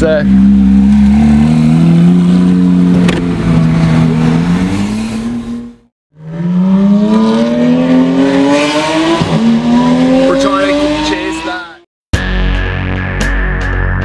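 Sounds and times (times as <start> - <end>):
car accelerating away: 0.2 - 11.7
sports car engine revving: 0.2 - 11.8.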